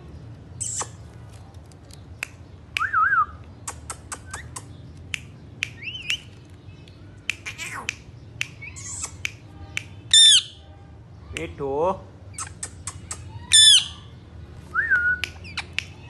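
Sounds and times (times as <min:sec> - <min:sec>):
parrots clicking and squawking: 0:03.6 - 0:10.5, 0:12.4 - 0:13.8
parrot rising chirp: 0:10.1 - 0:10.6, 0:12.3 - 0:14.0
parrot warbling whistle: 0:10.1 - 0:10.6, 0:13.5 - 0:13.9.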